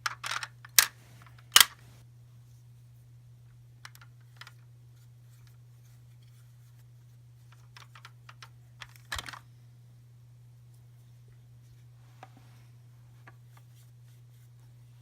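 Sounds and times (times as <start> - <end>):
plastic toys clicking: 0.0 - 1.8
toys clattering: 0.0 - 1.9, 7.6 - 9.4
low electrical hum: 0.0 - 15.0.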